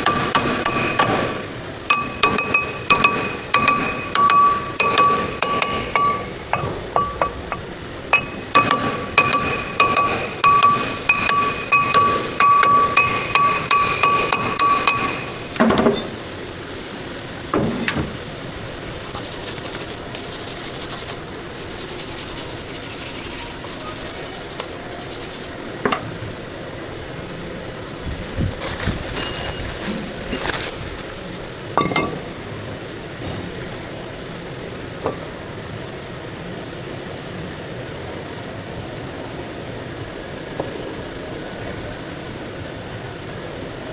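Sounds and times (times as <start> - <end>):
hammer on ringing metal: 1.9 - 7.6, 8.2 - 15.3
metal clinks and knocks: 31.8 - 32.3.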